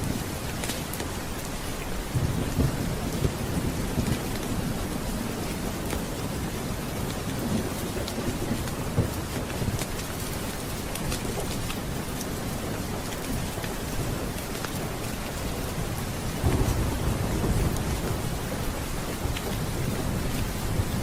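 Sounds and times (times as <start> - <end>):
steady rain: 0.0 - 21.0
low roll of thunder: 2.1 - 9.8, 15.7 - 21.0.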